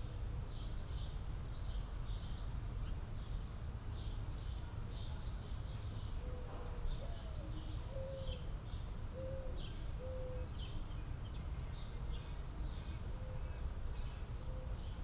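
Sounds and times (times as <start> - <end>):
small birds chirping: 0.0 - 15.0
dove cooing: 6.2 - 8.4, 9.1 - 10.5.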